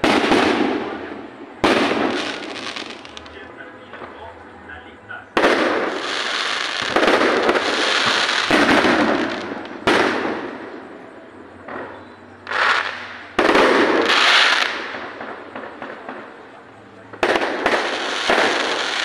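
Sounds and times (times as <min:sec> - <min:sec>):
firework shells bursting: 0:00.0 - 0:04.1, 0:05.4 - 0:10.8, 0:17.1 - 0:19.0.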